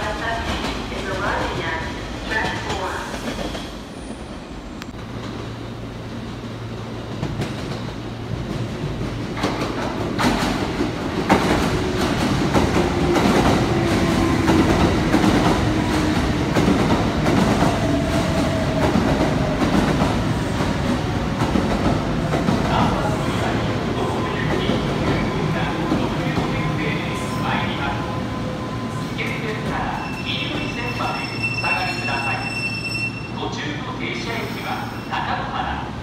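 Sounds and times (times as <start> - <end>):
train wheels clattering over rails: 7.0 - 22.9.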